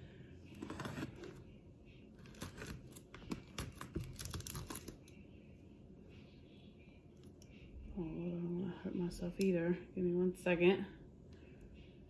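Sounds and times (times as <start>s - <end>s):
plastic wrapping crinkling: 2.2s - 5.0s.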